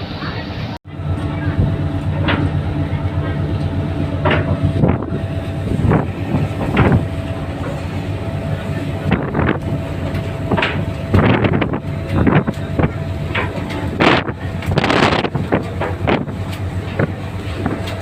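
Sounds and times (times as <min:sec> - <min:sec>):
ferry engine humming: 0:00.0 - 0:18.0
wind buffeting microphone: 0:01.0 - 0:18.0.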